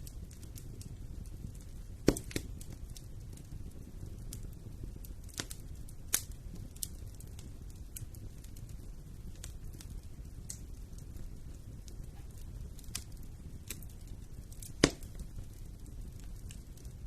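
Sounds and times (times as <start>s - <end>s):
fireplace fire crackling and popping: 0.0s - 17.0s
low rumble of fire: 0.0s - 17.0s.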